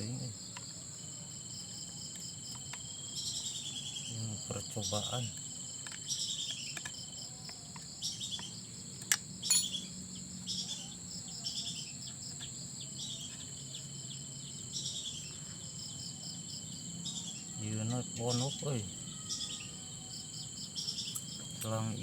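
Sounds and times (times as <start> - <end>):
high insect trilling: 0.0 - 22.0
descending bird calls: 9.4 - 22.0.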